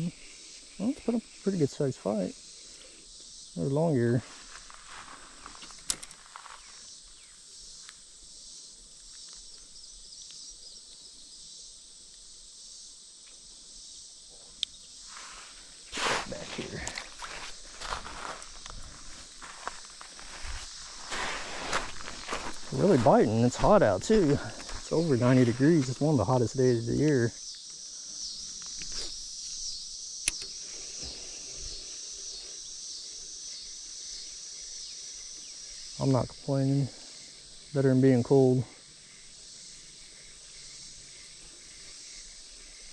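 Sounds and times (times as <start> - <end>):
high-pitched insect drone: 0.0 - 42.9
sharp click: 30.2 - 30.6.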